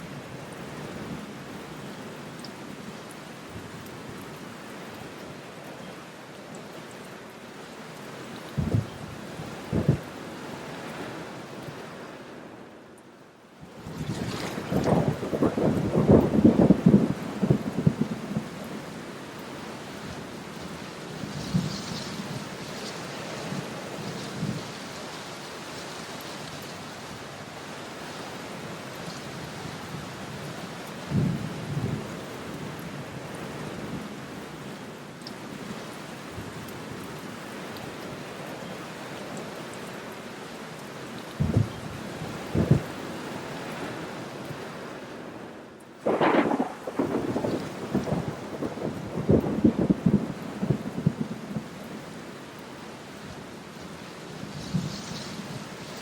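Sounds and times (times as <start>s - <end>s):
rain on window glass: 14.6s - 34.0s, 45.8s - 56.0s.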